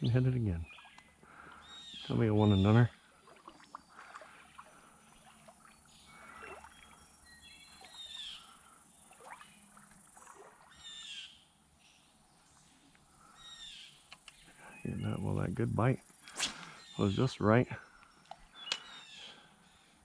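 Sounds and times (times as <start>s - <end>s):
faint songbird calls: 0.0s - 20.0s.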